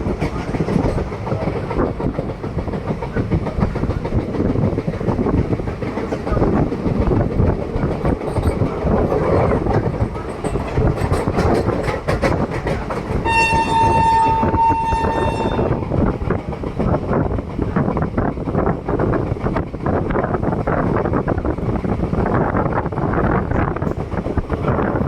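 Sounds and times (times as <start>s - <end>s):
clickety-clack of rail joints: 0.0s - 25.0s
train rumbling: 0.0s - 25.0s
locomotive horn: 13.2s - 15.9s.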